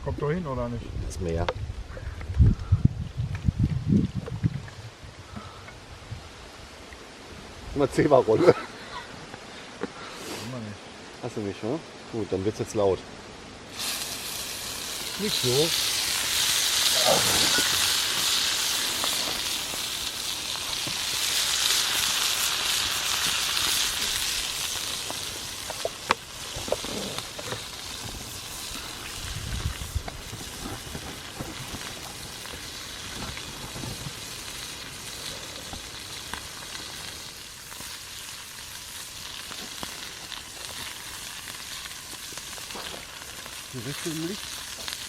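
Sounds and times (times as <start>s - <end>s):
meat sizzling in hot oil: 13.7s - 45.0s.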